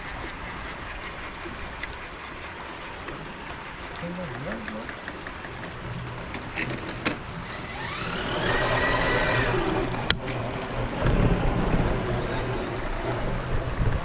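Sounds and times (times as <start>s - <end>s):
electric motor whining: 5.4s - 13.2s.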